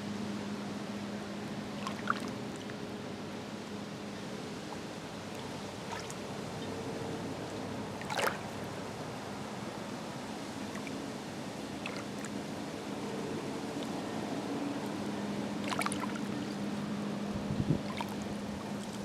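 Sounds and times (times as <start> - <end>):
small waves lapping: 1.5 - 2.9, 4.5 - 8.8, 10.6 - 19.0
water splash: 8.0 - 8.4, 15.6 - 16.2.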